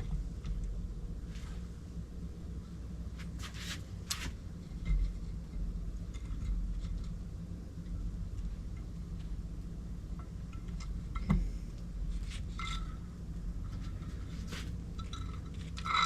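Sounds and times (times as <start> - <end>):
steady low hum: 0.0 - 16.0
metal parts clinking and scraping: 12.2 - 16.0.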